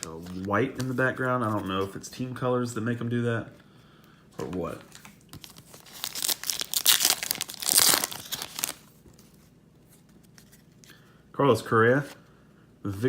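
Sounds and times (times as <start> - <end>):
foil wrapper tearing and crinkling: 5.4 - 8.9.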